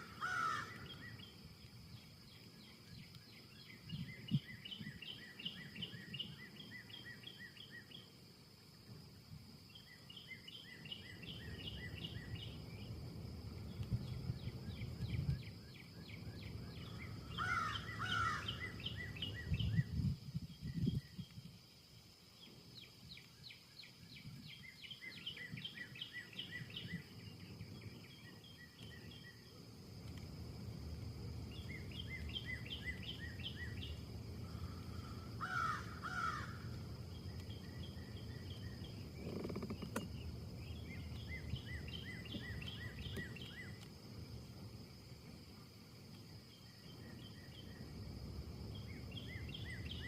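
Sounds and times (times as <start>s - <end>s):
loud bird call: 0.0s - 1.2s, 16.8s - 19.4s, 31.7s - 36.8s
wind rushing through trees: 0.0s - 50.0s
small birds chirping: 9.6s - 21.4s, 22.4s - 50.0s.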